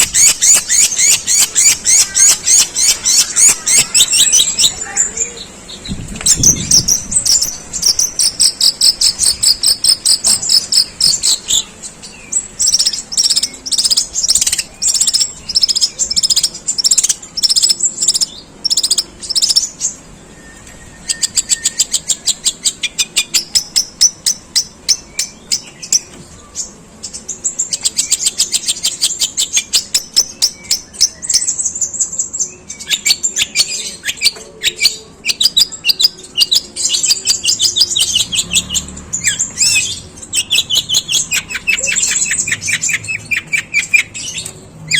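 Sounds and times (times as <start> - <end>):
shrike singing harsh chirps: 0.0 - 32.1.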